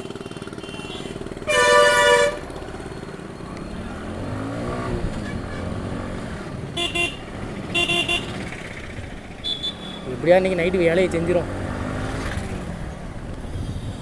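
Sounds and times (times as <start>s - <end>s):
motorcycle engine running: 0.0s - 14.0s
road noise: 0.0s - 14.0s
vehicle horn: 0.2s - 2.7s, 5.1s - 6.1s, 6.7s - 8.7s, 9.3s - 10.2s.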